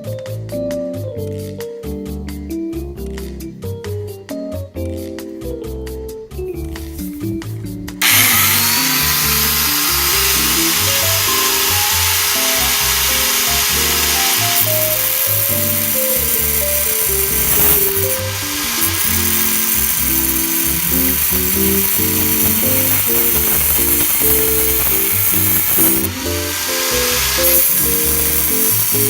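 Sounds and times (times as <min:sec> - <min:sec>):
background music with bass: 0:00.0 - 0:29.0
electric power tool whining: 0:08.0 - 0:29.0.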